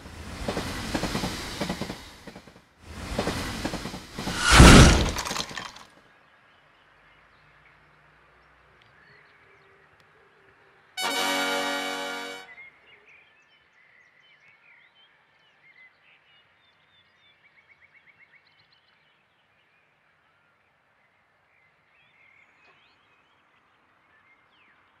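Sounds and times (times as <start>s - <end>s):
loud horn note: 11.0s - 12.6s.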